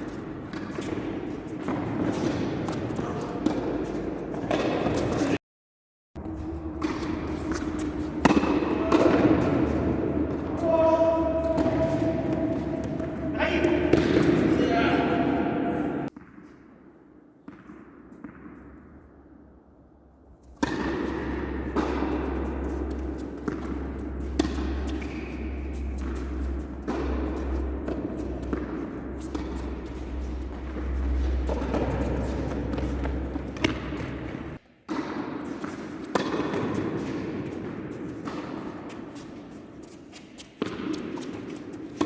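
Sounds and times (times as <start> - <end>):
indoor hall noise with low hum: 6.2 - 16.1, 20.4 - 34.6
tennis ball impacts: 6.2 - 16.4, 20.5 - 38.7.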